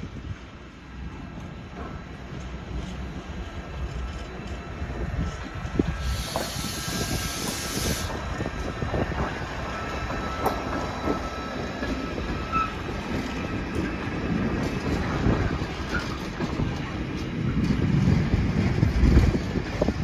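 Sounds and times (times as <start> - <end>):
train wheels rumbling: 0.0 - 20.0
clatter over rail joints: 1.0 - 6.6, 8.4 - 20.0
faint wheel squeal: 9.7 - 12.8.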